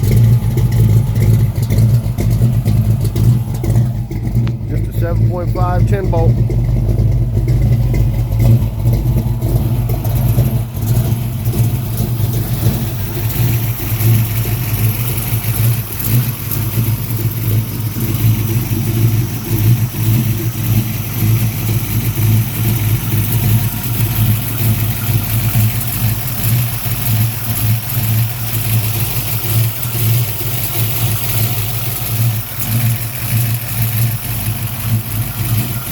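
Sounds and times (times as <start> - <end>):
car engine idling: 0.0 - 35.9.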